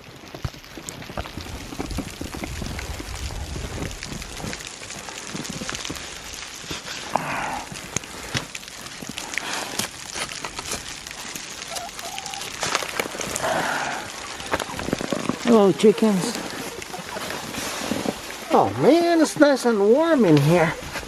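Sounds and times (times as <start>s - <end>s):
blizzard snow crackling and rustling: 0.0s - 21.0s.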